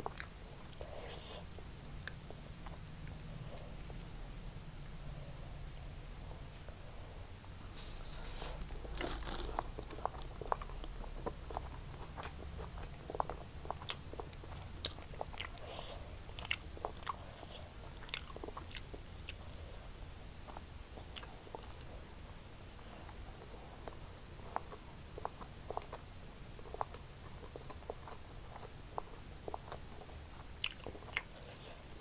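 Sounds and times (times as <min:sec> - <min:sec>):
faint low hum: 0:00.0 - 0:32.0
wet chewing and smacking: 0:08.8 - 0:19.8, 0:26.6 - 0:32.0.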